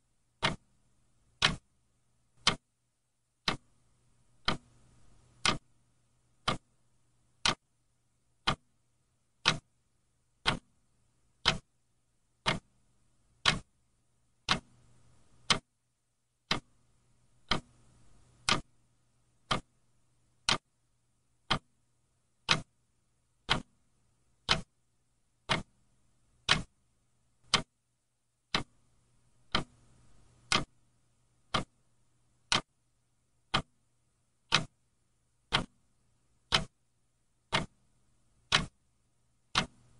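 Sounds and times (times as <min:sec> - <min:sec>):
clock ticking: 0:00.4 - 0:01.7, 0:02.4 - 0:02.7, 0:03.4 - 0:06.8, 0:07.4 - 0:07.7, 0:08.4 - 0:08.7, 0:09.4 - 0:09.8, 0:10.4 - 0:10.8, 0:11.4 - 0:11.8, 0:12.4 - 0:12.8, 0:13.4 - 0:13.7, 0:14.4 - 0:15.7, 0:16.4 - 0:16.8, 0:17.4 - 0:18.8, 0:19.4 - 0:19.8, 0:20.4 - 0:20.8, 0:21.4 - 0:21.8, 0:22.4 - 0:22.8, 0:23.4 - 0:23.8, 0:24.4 - 0:24.8, 0:25.4 - 0:25.8, 0:26.4 - 0:26.8, 0:27.4 - 0:27.8, 0:28.5 - 0:30.8, 0:31.4 - 0:32.8, 0:33.5 - 0:36.8, 0:37.4 - 0:38.9, 0:39.5 - 0:39.9.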